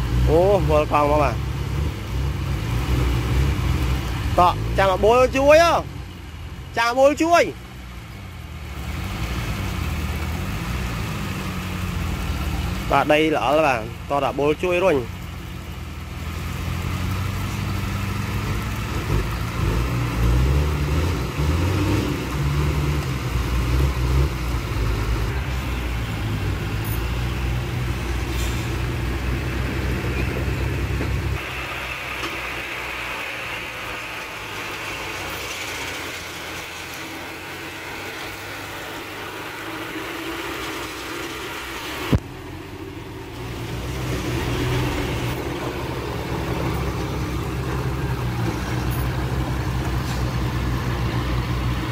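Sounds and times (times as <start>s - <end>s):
heavy diesel engine running: 2.6s - 51.9s.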